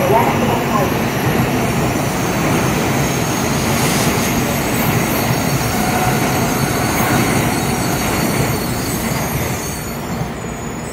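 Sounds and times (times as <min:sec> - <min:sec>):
train rushing past at speed: 0:00.0 - 0:10.9.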